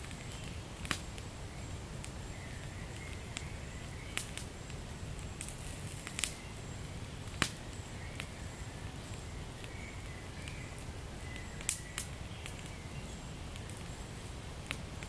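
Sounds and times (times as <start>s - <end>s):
fireplace fire crackling and popping: 0.0s - 15.0s.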